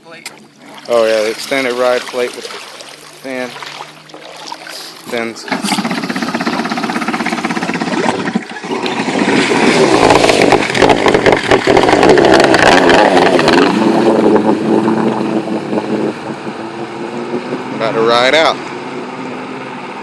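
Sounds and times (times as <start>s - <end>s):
jet ski engine revving: 0.1s - 20.0s.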